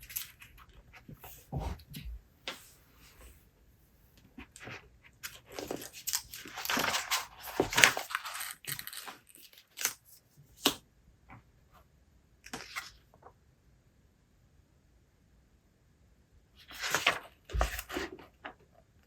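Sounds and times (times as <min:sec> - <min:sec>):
rustling and crinkling handling: 0:04.1 - 0:10.3, 0:16.6 - 0:18.8.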